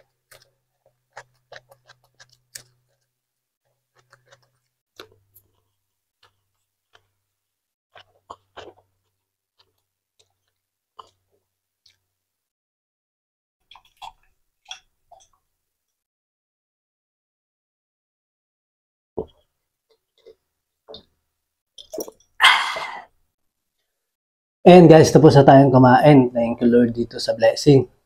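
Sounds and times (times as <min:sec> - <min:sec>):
crisp chewing crunches: 0:00.0 - 0:07.2, 0:07.9 - 0:12.0
wet mouth clicks and smacks: 0:21.8 - 0:22.6.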